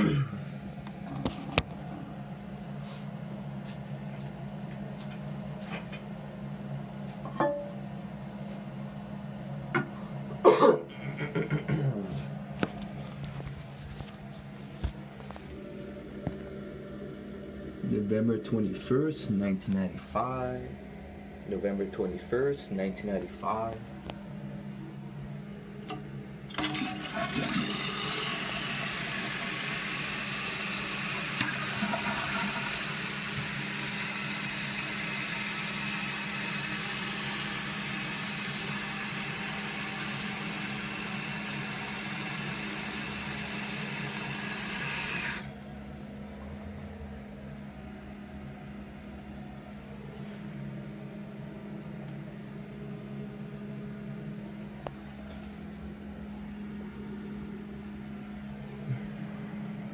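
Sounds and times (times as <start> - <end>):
toilet flush click: 25.9 - 45.5
toilet water rushing: 26.5 - 45.5
tank filling hiss: 27.4 - 45.5.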